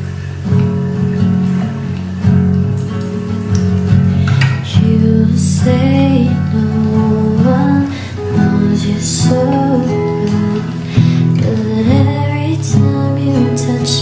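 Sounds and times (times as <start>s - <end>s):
acoustic guitar strumming: 0.0s - 14.0s
person singing: 4.6s - 14.0s.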